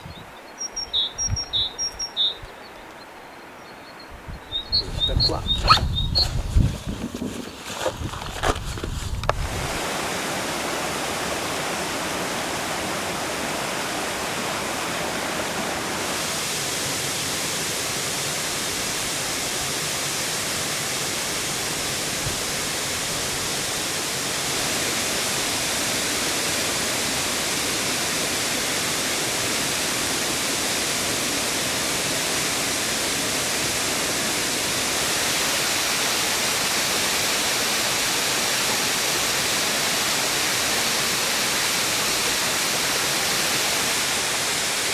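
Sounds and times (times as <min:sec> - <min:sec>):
waterfall rushing: 0:09.4 - 0:44.9.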